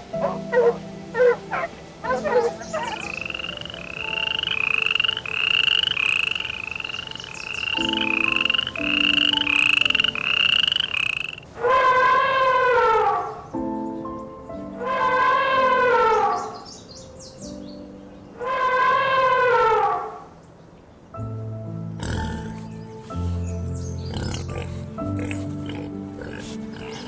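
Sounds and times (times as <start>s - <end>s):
animal yelping calls: 11.6s - 13.3s, 22.0s - 27.0s
loud falling animal call: 11.6s - 13.3s.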